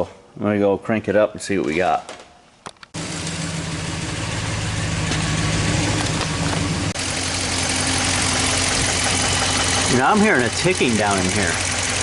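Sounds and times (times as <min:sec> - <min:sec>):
engine idling with misfire: 0:03.0 - 0:12.0.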